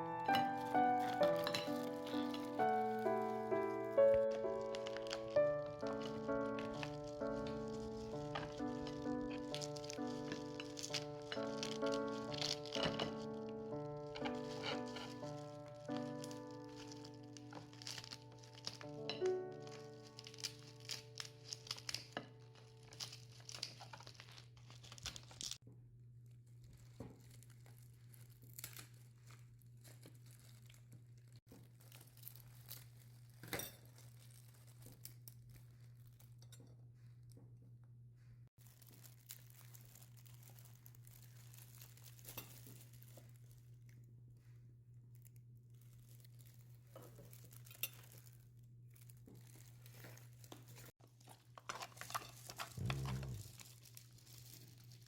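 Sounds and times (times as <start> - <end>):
crinkling and tearing: 0.0 - 25.6, 26.2 - 37.4, 38.6 - 55.0.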